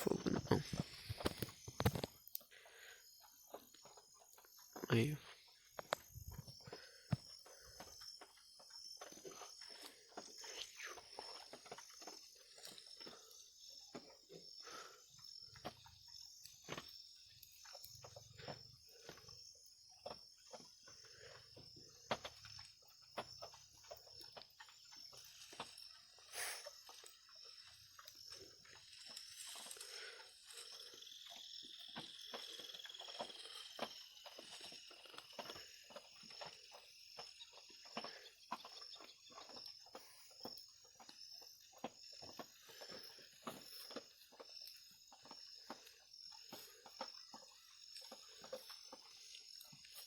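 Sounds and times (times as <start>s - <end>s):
faint clicks and crackles: 0.0s - 3.0s
night insects trilling: 0.0s - 50.0s.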